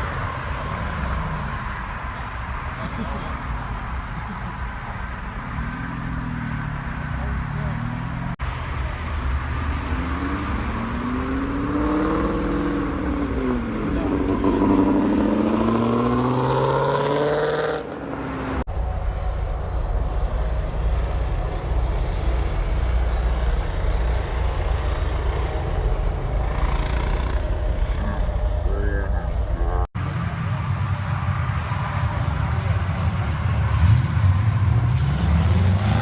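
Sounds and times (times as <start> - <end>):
car engine revving: 9.2 - 18.7, 32.4 - 36.0.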